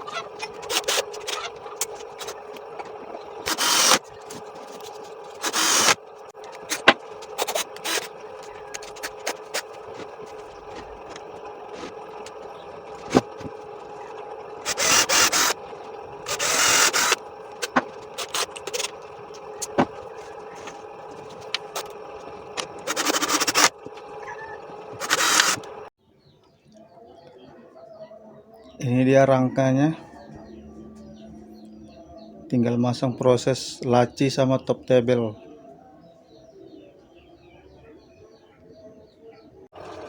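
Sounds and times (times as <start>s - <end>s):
steady background hum: 0.0s - 25.9s.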